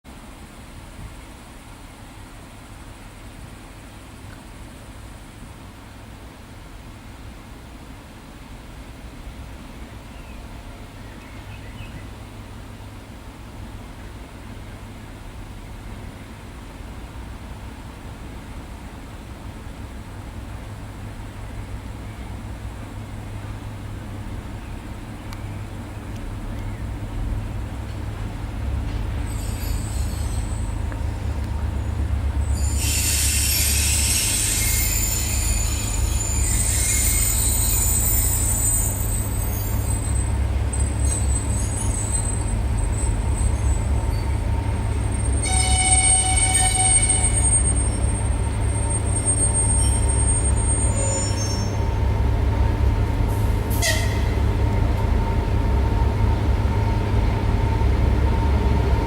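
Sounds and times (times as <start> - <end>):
freight train rumbling: 0.1 - 59.0
high-pitched wheel squeal: 29.2 - 30.8, 32.4 - 44.4, 45.1 - 51.8, 53.7 - 54.4.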